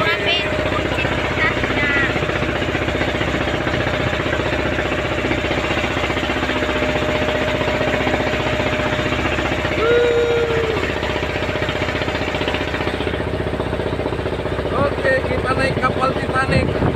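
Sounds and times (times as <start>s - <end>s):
boat engine knocking: 0.0s - 16.9s.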